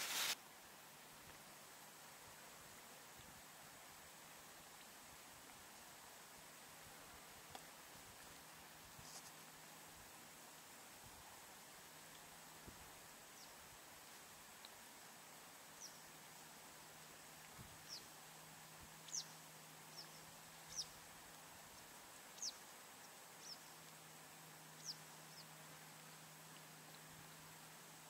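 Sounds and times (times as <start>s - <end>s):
faint background hiss: 0.0s - 28.0s
bird chirping: 15.8s - 16.0s, 19.0s - 21.0s, 24.8s - 25.5s.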